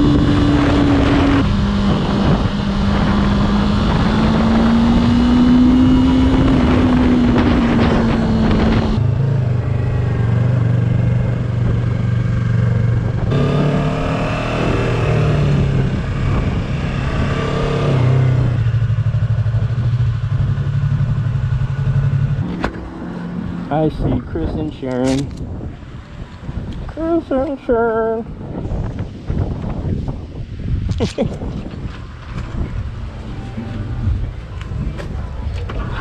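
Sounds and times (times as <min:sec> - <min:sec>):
motorcycle engine running: 0:00.0 - 0:24.0
wind rushing over microphone: 0:00.0 - 0:36.0.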